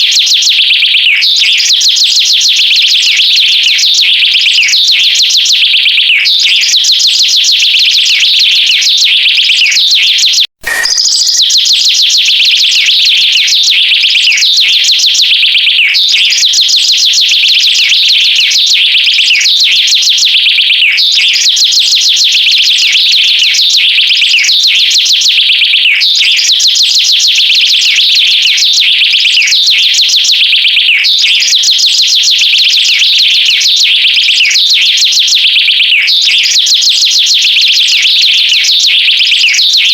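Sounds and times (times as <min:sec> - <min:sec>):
high-pitched bird chirping: 0:10.6 - 0:11.8.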